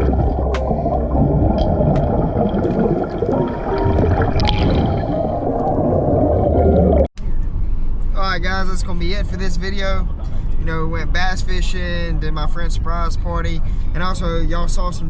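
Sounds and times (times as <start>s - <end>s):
water gurgling and bubbling: 0.0s - 7.1s.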